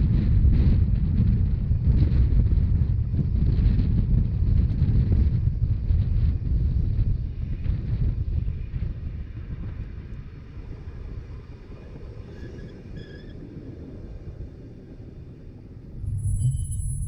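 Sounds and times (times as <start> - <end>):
train rumbling from on board: 0.0 - 17.0
faint squeaks: 12.3 - 13.4, 16.0 - 17.0.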